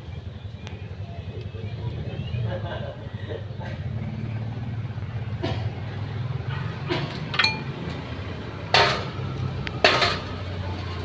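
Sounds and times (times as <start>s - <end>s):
metal clatter: 6.4s - 11.0s
metal tools clinking: 6.9s - 8.1s.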